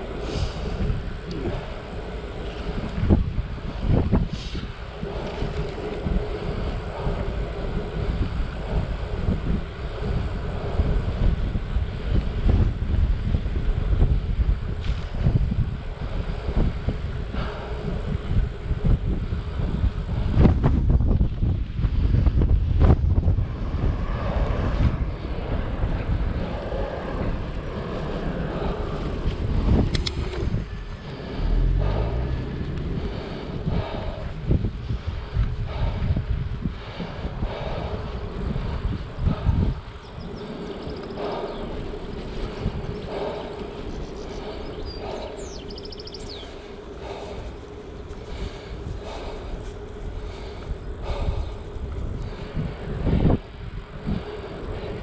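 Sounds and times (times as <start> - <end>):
faint steady hum: 0.0 - 55.0
road noise: 0.0 - 55.0
wind buffeting microphone: 0.0 - 55.0.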